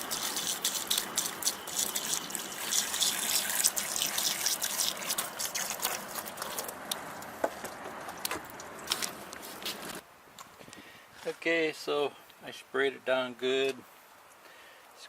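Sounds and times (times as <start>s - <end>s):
hose water splashing on metal fins: 0.0s - 10.0s.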